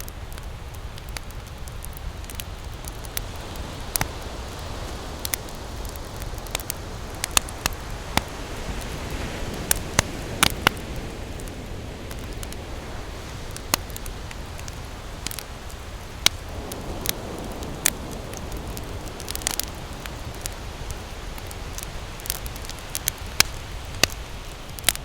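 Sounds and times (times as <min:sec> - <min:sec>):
campfire crackling and popping: 0:00.0 - 0:25.0
ocean surf rumble: 0:00.0 - 0:25.0.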